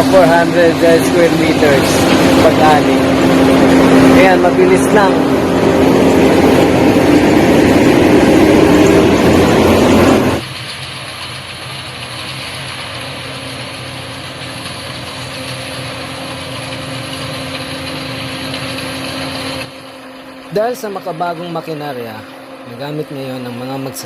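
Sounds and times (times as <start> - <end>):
combine harvester running: 0.0 - 24.0.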